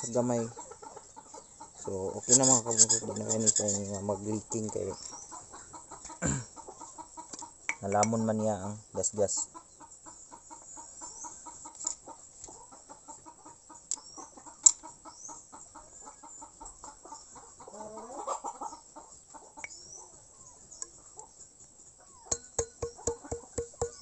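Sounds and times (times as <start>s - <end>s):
chickens clucking: 0.0s - 24.0s
high thin chirps: 2.1s - 4.8s, 7.6s - 8.5s, 19.6s - 24.0s.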